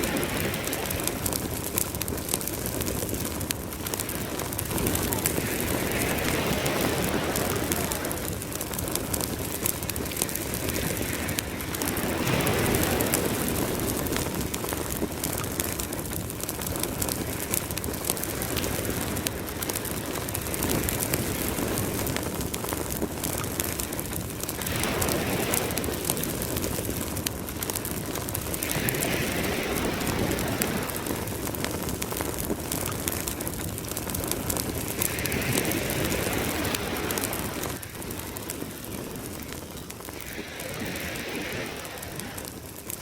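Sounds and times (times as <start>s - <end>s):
campfire crackling and popping: 0.0s - 43.0s
ocean waves washing in: 0.0s - 43.0s.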